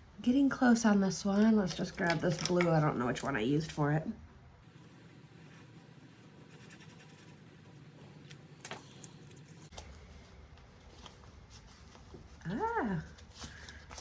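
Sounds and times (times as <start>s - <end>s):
pen scratching on paper: 4.7s - 8.3s.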